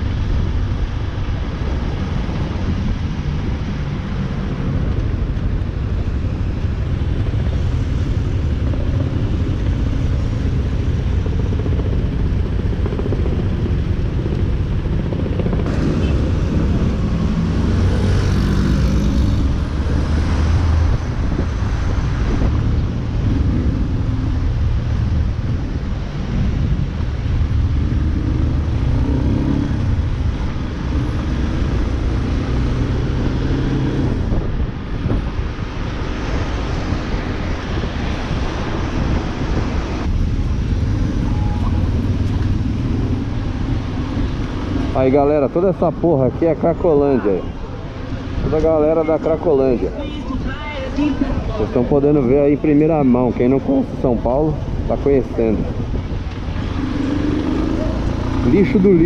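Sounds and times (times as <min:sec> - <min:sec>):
wind noise: 0:00.0 - 0:59.0
motorcycle engine running: 0:06.6 - 0:19.5.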